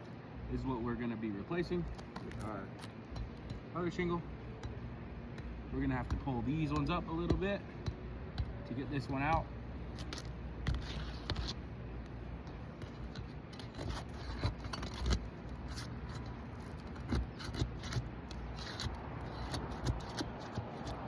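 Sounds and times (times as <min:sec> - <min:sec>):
shingles scraping: 0:12.7 - 0:21.0.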